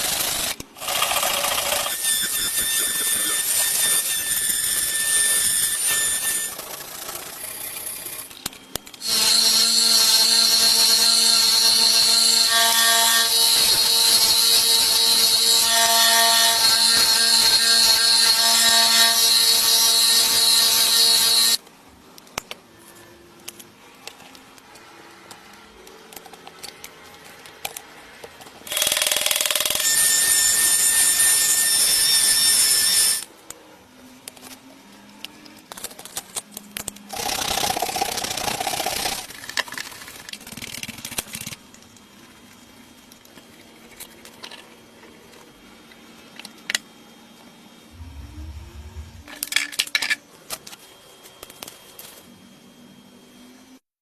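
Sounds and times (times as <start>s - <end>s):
power tool whining: 9.0s - 21.6s.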